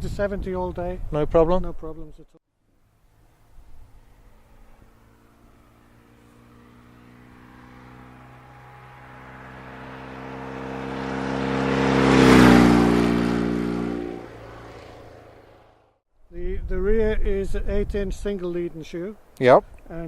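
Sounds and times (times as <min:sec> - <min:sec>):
motorcycle riding past: 0:02.8 - 0:16.0.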